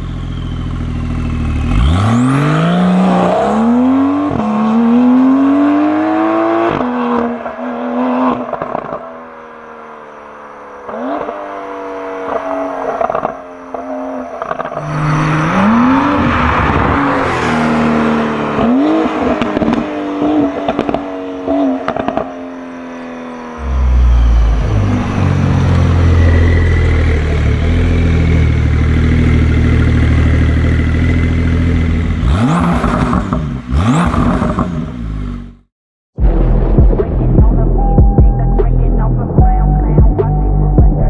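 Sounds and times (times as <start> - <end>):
car engine revving hard: 1.6 - 9.0, 14.6 - 22.3, 23.6 - 35.6.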